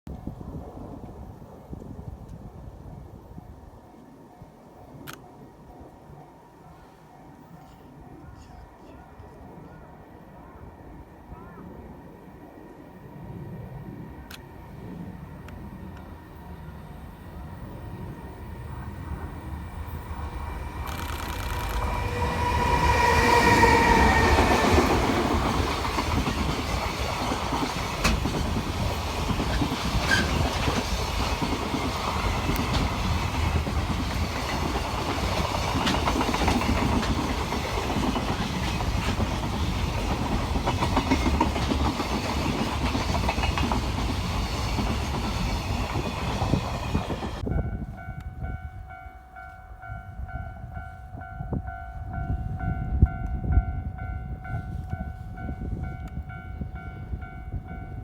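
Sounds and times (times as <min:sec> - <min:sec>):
diesel locomotive passing: 0:04.4 - 0:58.0
wheels clacking over rail joints: 0:18.4 - 0:47.4.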